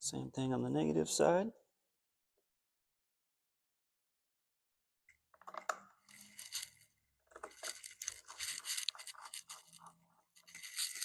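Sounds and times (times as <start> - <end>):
rustling and scraping handling noise: 5.4 - 11.0.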